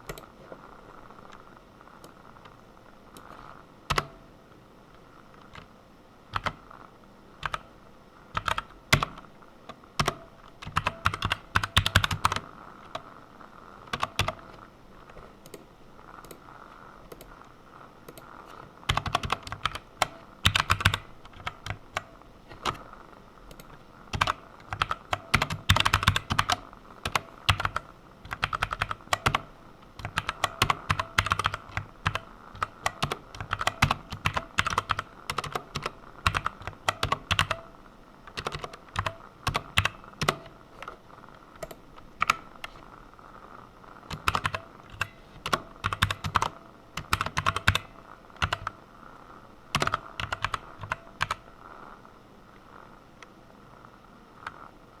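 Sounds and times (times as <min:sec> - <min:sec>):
computer keyboard typing: 0:00.0 - 0:00.3, 0:03.2 - 0:04.2, 0:06.3 - 0:06.6, 0:07.4 - 0:07.7, 0:08.3 - 0:09.3, 0:10.0 - 0:13.1, 0:13.8 - 0:16.4, 0:17.1 - 0:37.7, 0:38.3 - 0:41.0, 0:41.6 - 0:42.8, 0:44.1 - 0:48.8, 0:49.7 - 0:51.4.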